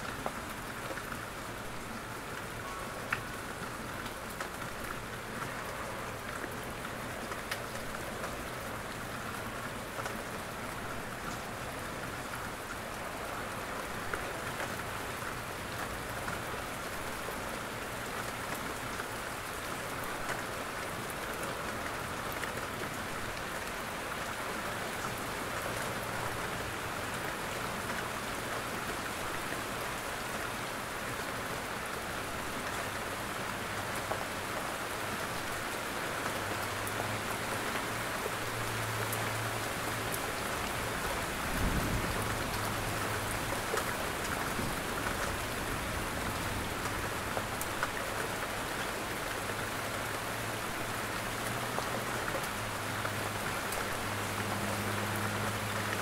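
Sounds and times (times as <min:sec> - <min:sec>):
rain on foliage and roof: 0:00.0 - 0:56.0
rain drop ticks: 0:02.2 - 0:14.9, 0:41.6 - 0:49.4.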